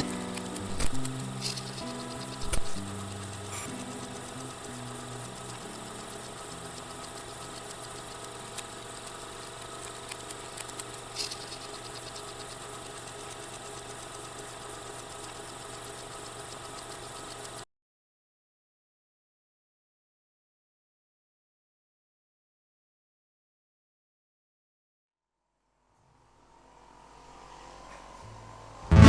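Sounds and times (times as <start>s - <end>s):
machine hum: 0.0s - 17.3s, 26.4s - 29.0s
faint clicks: 0.0s - 17.6s
low shifting tones: 26.4s - 29.0s.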